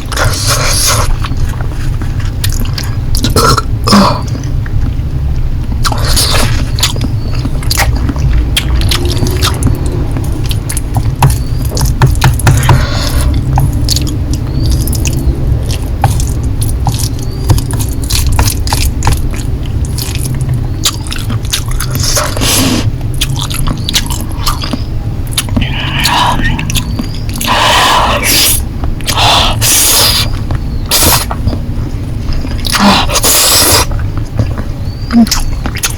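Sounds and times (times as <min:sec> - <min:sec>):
low hum: 0:00.0 - 0:35.9
chewing noodles wet smacks: 0:05.8 - 0:22.4, 0:23.1 - 0:27.6, 0:32.3 - 0:35.9
slurping: 0:05.8 - 0:31.5, 0:32.3 - 0:34.1.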